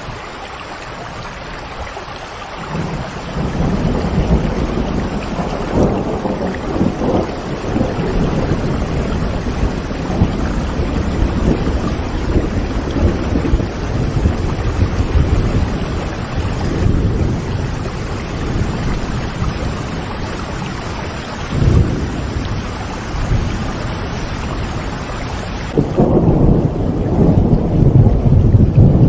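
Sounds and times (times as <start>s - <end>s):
steady rain: 0.0s - 29.0s
rolling thunder: 2.6s - 29.0s.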